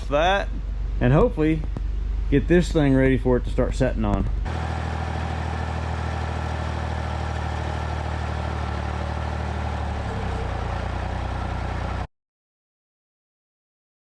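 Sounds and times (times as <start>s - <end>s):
vehicle engine idling: 4.5s - 12.1s.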